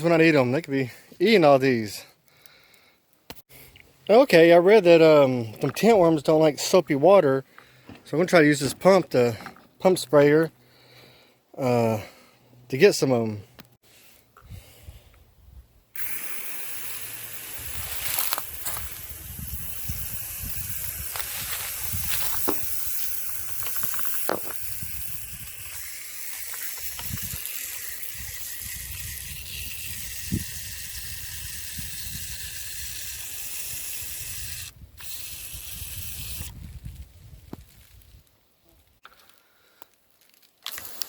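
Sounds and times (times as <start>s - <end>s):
pump sprayer hissing: 16.0s - 36.5s.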